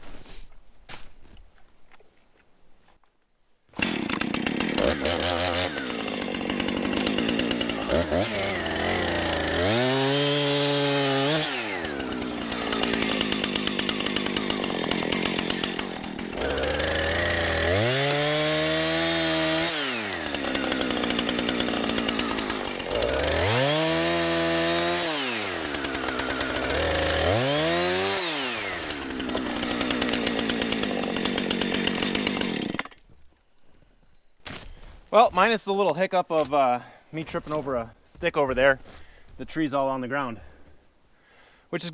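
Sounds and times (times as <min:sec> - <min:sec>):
chainsaw cutting tree trunk: 0:03.7 - 0:33.0.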